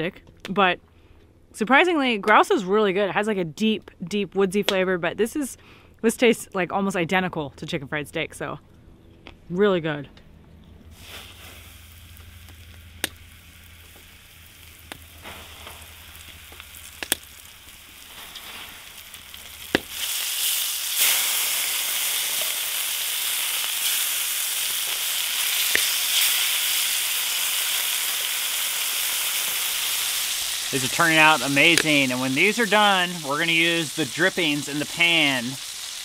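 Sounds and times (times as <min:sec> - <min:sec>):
meat frying in a skillet: 0:11.0 - 0:36.0.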